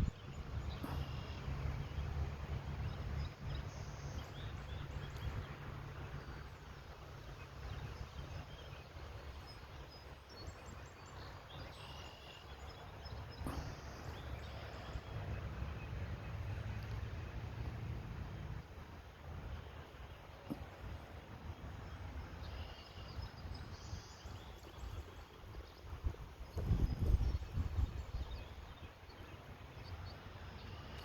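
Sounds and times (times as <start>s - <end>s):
faint bird chirps: 0.0s - 1.9s
gusty wind buffeting microphone: 23.2s - 28.9s.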